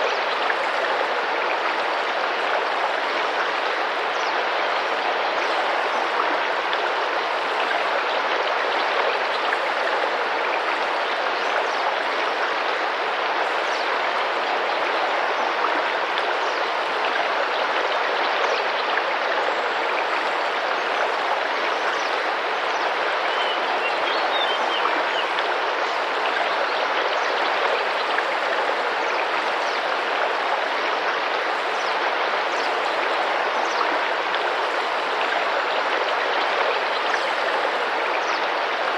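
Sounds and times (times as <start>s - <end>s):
river flowing: 0.0s - 38.9s.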